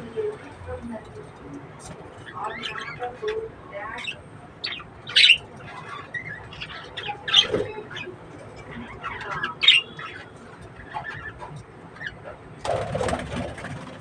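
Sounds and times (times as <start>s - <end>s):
budgerigars squawking and chirping: 2.2s - 12.9s.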